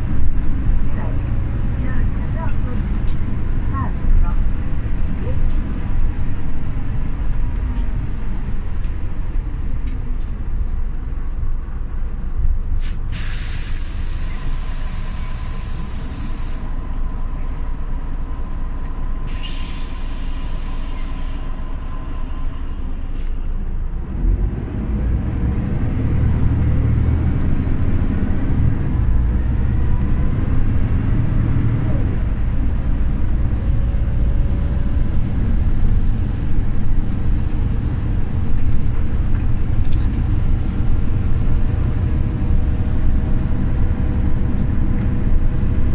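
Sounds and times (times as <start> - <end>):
bus engine running: 0.0 - 45.9
compressed air hissing: 12.8 - 16.8, 19.3 - 21.4.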